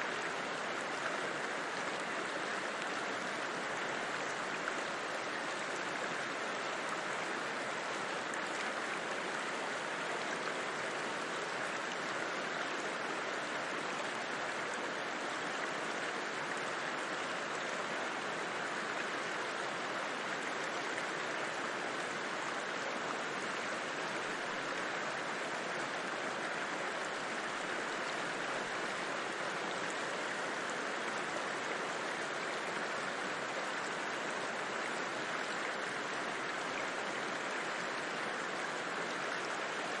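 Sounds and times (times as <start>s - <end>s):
river rushing: 0.0s - 40.0s.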